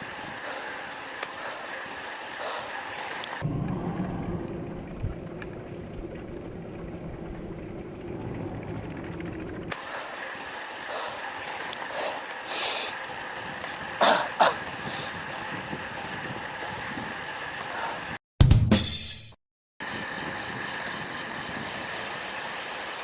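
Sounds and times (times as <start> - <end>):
wind buffeting microphone: 9.7 - 18.2.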